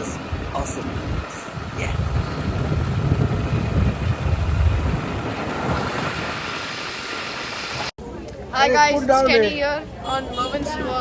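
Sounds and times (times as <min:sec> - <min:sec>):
road rumble: 0:00.0 - 0:11.0
wind rushing over microphone: 0:00.3 - 0:07.9.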